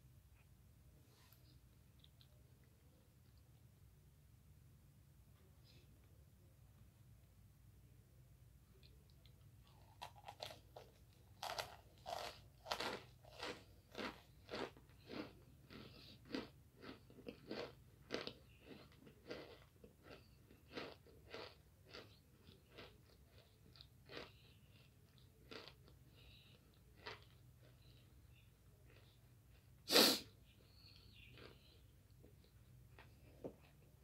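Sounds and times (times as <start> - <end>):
crisp crunches of chewing: 8.8 - 29.8, 30.5 - 33.8.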